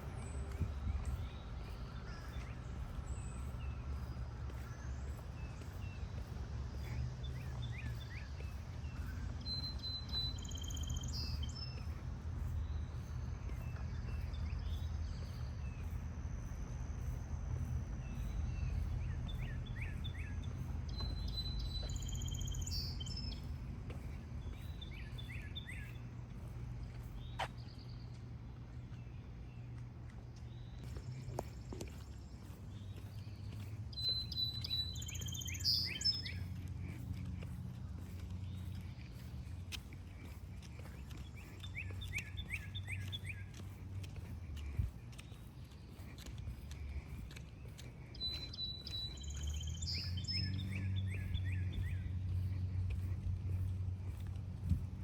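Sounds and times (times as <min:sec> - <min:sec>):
low outdoor rumble: 0:00.0 - 0:55.0
bird chirps and calls: 0:32.4 - 0:54.3.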